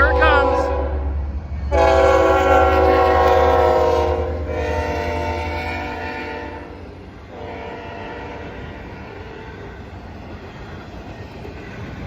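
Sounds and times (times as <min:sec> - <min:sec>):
locomotive air horn blast: 0:00.0 - 0:01.0, 0:01.7 - 0:08.6
diesel train rumbling: 0:00.0 - 0:12.0.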